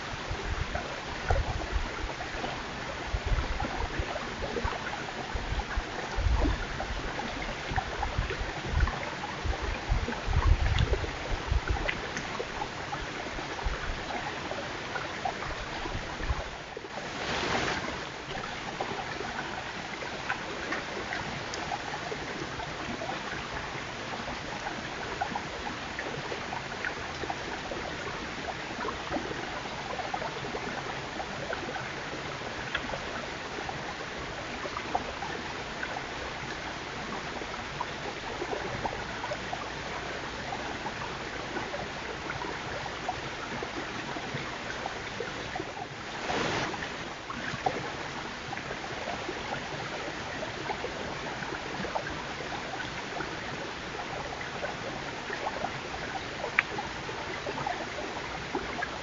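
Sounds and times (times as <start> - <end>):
steady hiss: 17.0 - 18.8, 46.1 - 47.2.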